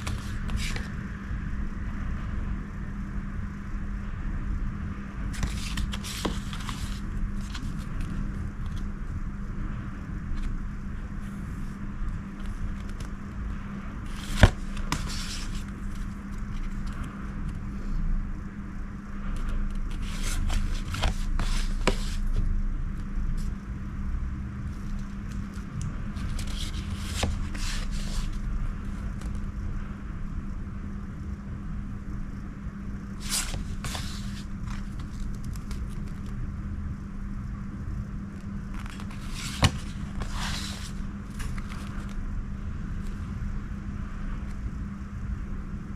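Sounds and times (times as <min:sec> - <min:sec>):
steady low hum: 0:00.0 - 0:45.9
paper and plastic rustling: 0:05.4 - 0:08.8, 0:14.1 - 0:17.0, 0:33.2 - 0:36.3, 0:38.8 - 0:42.2.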